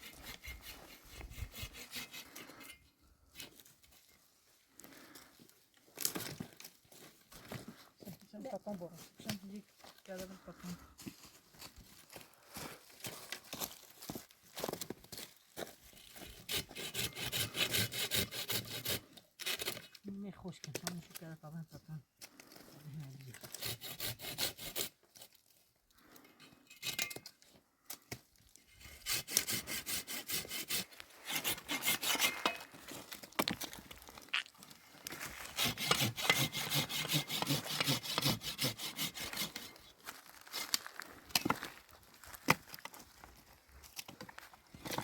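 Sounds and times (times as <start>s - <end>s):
hand saw cutting wood: 0.0s - 3.6s, 16.1s - 19.9s, 23.3s - 25.3s, 28.7s - 33.6s, 35.1s - 39.9s.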